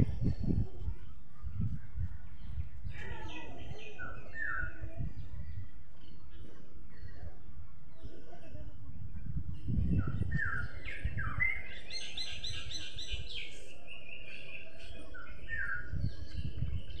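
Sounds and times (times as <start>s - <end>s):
songbirds singing and chirping: 0.0s - 17.0s.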